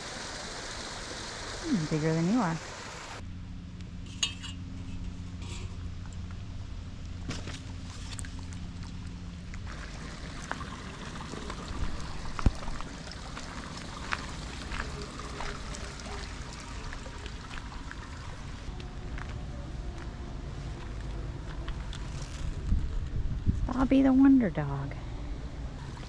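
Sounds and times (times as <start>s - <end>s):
water trickling: 0.0s - 3.2s, 8.2s - 18.8s, 25.8s - 26.0s.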